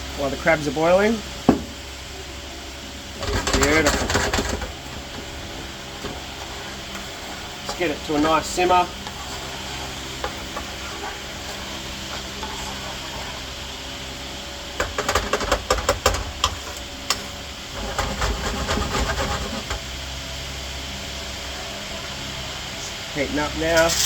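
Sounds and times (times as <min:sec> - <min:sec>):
steady mechanical hum: 0:00.0 - 0:24.0
utensil scraping a pan: 0:03.2 - 0:13.8, 0:14.8 - 0:19.8, 0:23.7 - 0:24.0
sauce hissing in a frying pan: 0:04.8 - 0:15.1, 0:15.7 - 0:24.0.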